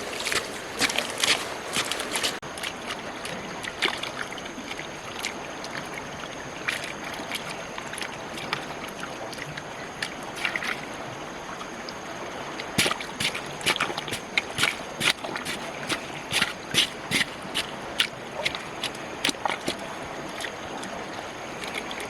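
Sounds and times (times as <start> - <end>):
outdoor hiss: 0.0 - 2.5
short water splashes: 0.0 - 22.0
water sloshing: 0.0 - 22.0.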